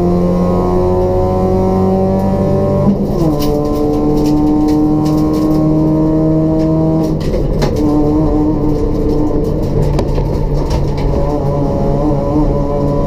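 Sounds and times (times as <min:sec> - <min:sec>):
car engine running hard: 0:00.0 - 0:13.0.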